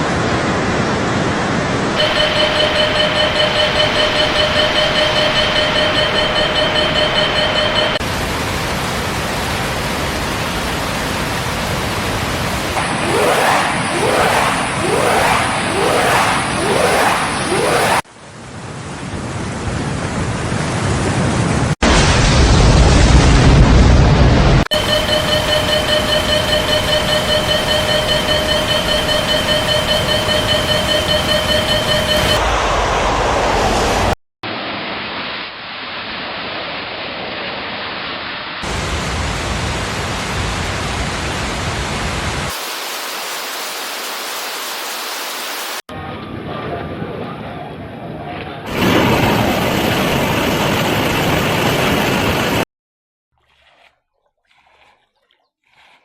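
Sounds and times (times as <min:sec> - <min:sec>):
rushing water: 0:05.8 - 0:17.0, 0:38.6 - 0:45.8, 0:53.3 - 0:56.0
rushing floodwater roar: 0:06.4 - 0:16.2.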